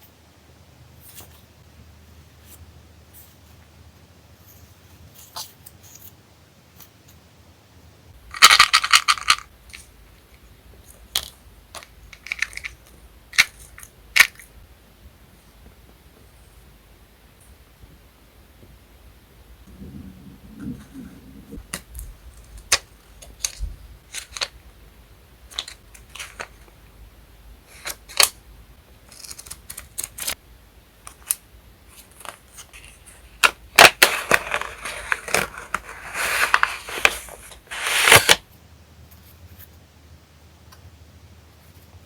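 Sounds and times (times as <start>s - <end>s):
paper rustling and crinkling: 29.1s - 30.4s, 31.9s - 38.4s.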